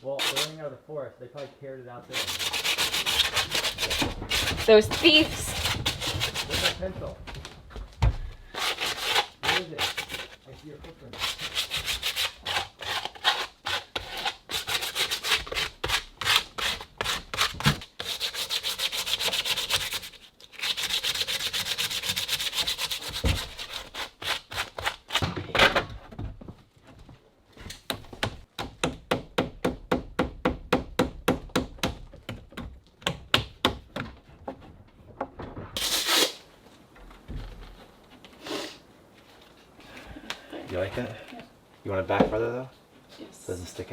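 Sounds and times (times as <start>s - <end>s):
scraping strokes on wood: 0.2s - 0.6s, 2.1s - 6.9s, 8.5s - 25.2s.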